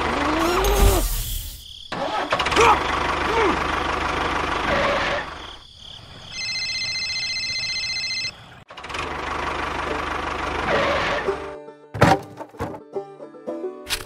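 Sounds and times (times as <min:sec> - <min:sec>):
tractor engine running: 0:01.0 - 0:05.5, 0:08.7 - 0:11.5.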